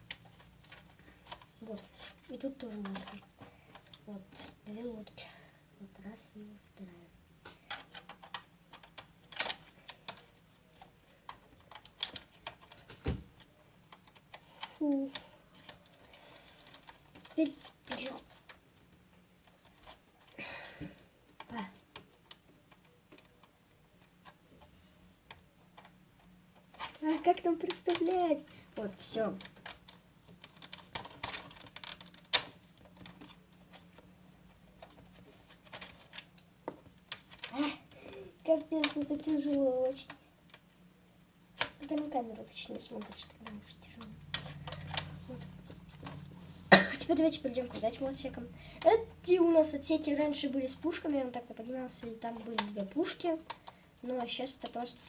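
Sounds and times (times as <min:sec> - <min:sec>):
plastic toy bricks clicking: 0:02.6 - 0:04.0, 0:07.4 - 0:13.0, 0:29.0 - 0:33.9.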